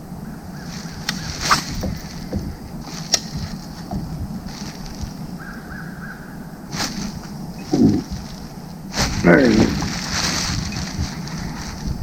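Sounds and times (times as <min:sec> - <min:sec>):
steady low hum: 0:00.0 - 0:12.0
sharp knocks: 0:01.4 - 0:05.1.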